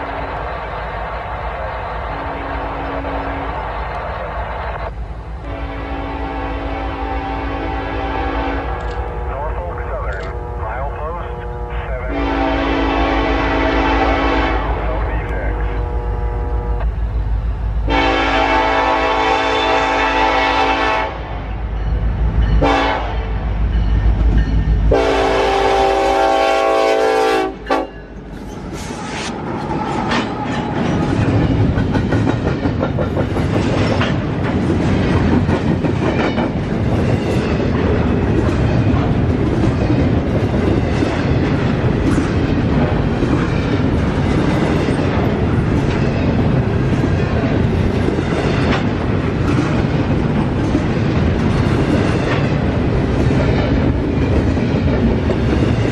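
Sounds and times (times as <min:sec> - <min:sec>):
train air horn blasts: 0:02.3 - 0:03.6, 0:05.4 - 0:09.5, 0:10.2 - 0:17.0, 0:17.9 - 0:21.3, 0:22.6 - 0:23.3, 0:24.9 - 0:28.0
wheels clacking over rail joints: 0:29.4 - 0:55.9.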